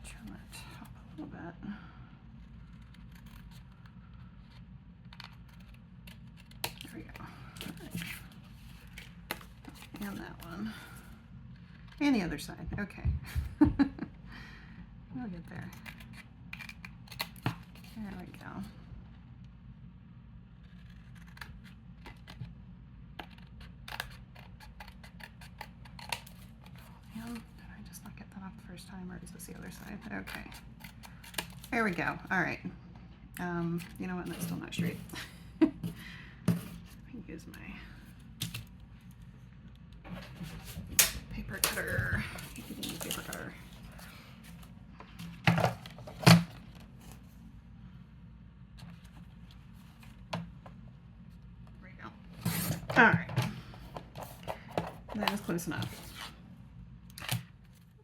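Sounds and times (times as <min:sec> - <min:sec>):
low steady hum: 0:00.0 - 0:58.0
scissors snipping paper: 0:20.6 - 0:22.4, 0:23.2 - 0:27.5.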